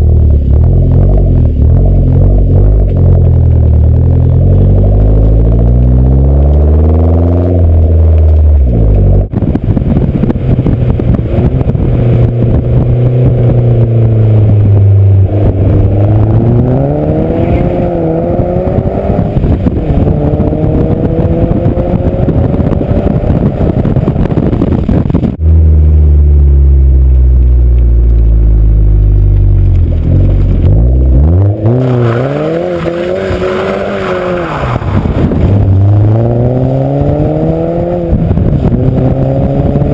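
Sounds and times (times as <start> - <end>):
car exhaust accelerating: 0.0 - 39.9
wind and road noise: 0.0 - 39.9.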